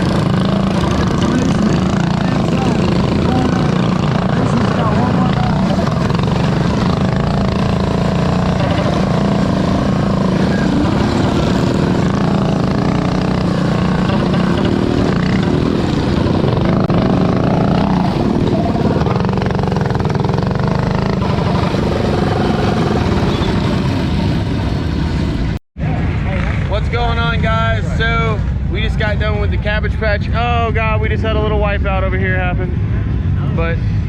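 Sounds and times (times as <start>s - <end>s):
mini bike engines running hard: 0.0s - 26.8s.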